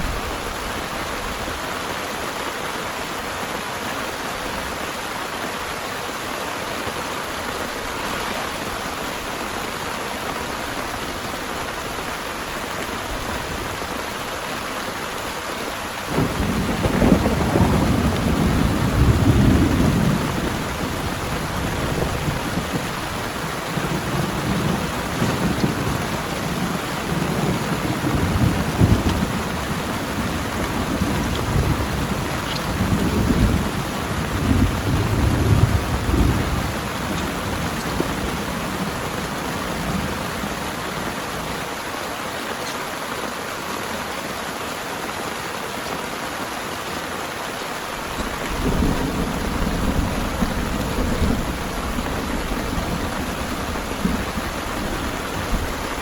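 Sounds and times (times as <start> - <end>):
heavy rain falling: 0.0 - 56.0
rolling thunder: 16.0 - 40.4, 48.2 - 56.0.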